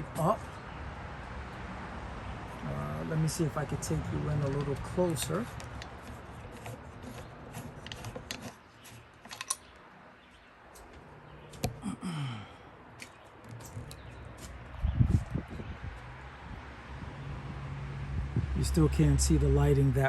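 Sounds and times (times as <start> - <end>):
light handling clicks and taps: 4.2 - 8.6.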